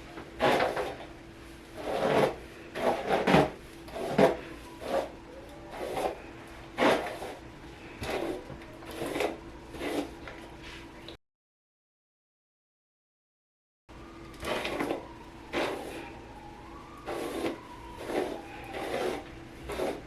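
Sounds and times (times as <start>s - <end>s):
scraping rubbing sounds: 0.4s - 1.1s, 1.7s - 6.2s, 6.8s - 11.0s, 17.1s - 20.0s.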